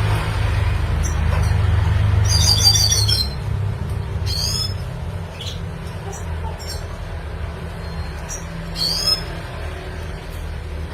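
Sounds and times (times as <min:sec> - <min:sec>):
bird singing high chirps: 0:02.2 - 0:03.5, 0:04.2 - 0:06.9, 0:07.8 - 0:09.4.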